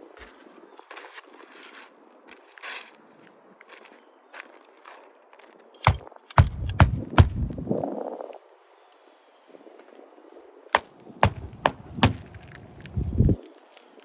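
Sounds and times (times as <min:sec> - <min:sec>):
sharp knocks and dull thuds: 0:05.9 - 0:07.6, 0:10.8 - 0:12.6
low rumbling handling noise: 0:05.9 - 0:07.7, 0:10.8 - 0:13.4.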